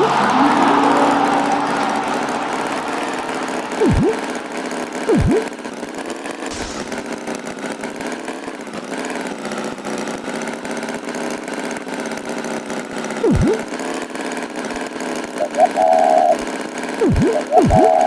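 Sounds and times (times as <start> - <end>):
swooping sound effect: 0.0 - 5.6, 6.5 - 7.2, 13.2 - 13.7, 17.0 - 18.0
cartoon tractor engine chugging: 6.5 - 7.1, 13.2 - 13.7, 17.0 - 18.0.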